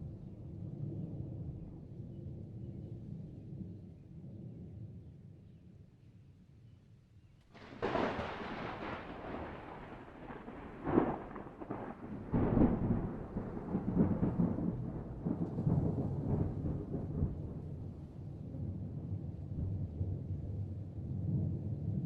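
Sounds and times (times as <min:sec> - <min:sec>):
thunder cracking and rumbling: 0:07.5 - 0:22.0.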